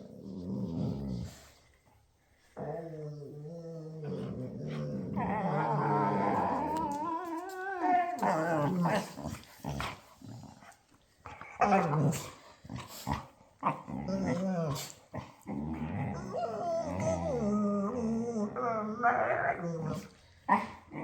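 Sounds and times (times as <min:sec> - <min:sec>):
dogs play-growling: 0:00.0 - 0:01.8, 0:02.6 - 0:21.0.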